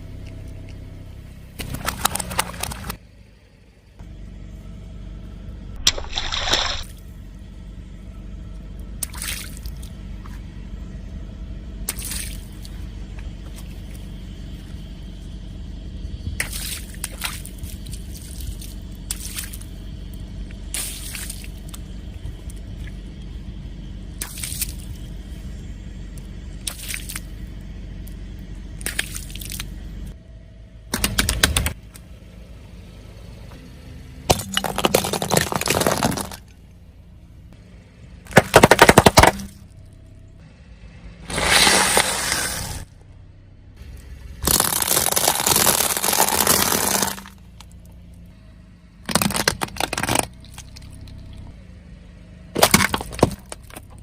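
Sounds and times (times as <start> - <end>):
low rumble: 0.0 - 31.0
objects crunching under tyres: 1.5 - 3.0, 5.8 - 7.2, 16.3 - 23.3, 24.2 - 25.6, 26.2 - 30.2, 34.3 - 36.7, 38.2 - 40.1, 41.2 - 43.0, 43.8 - 48.3, 49.0 - 51.6, 52.5 - 54.0.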